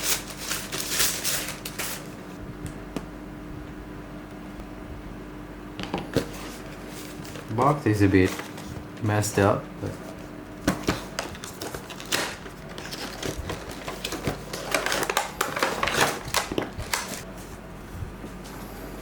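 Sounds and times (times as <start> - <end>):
packaging crinkling and rustling: 0.0 - 2.2, 6.1 - 17.3.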